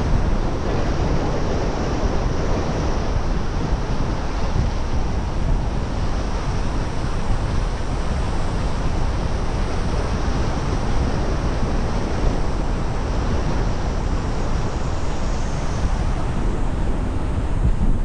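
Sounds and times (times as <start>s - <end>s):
wind buffeting car: 0.0s - 18.0s.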